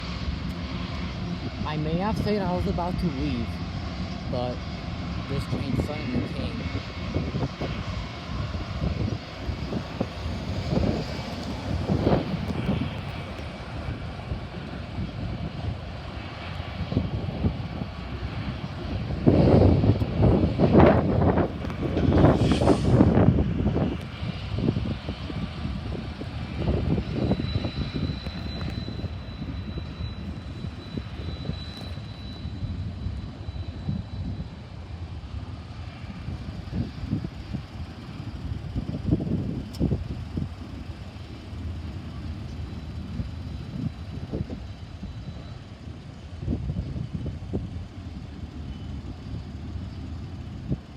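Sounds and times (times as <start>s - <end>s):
diesel locomotives droning: 0.0s - 50.9s
thin high whine: 26.6s - 34.8s.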